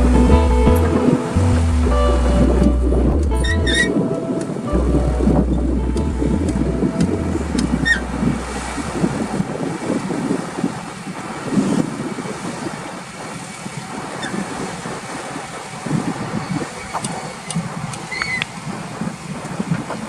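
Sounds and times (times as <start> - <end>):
wind buffeting microphone: 0.0 - 20.0
bulldozer diesel engine running: 4.7 - 9.5.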